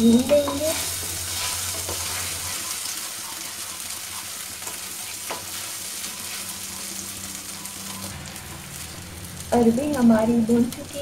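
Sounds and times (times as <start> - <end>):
food sizzling in hot oil: 0.0 - 11.0
spatula scraping a pan: 0.4 - 8.1.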